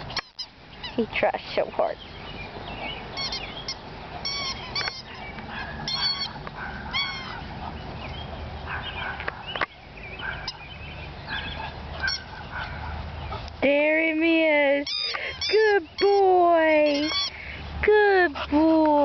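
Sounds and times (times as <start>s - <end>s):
chew toy squeaking: 0.1s - 1.0s, 3.2s - 5.2s, 5.9s - 7.4s, 14.8s - 17.4s.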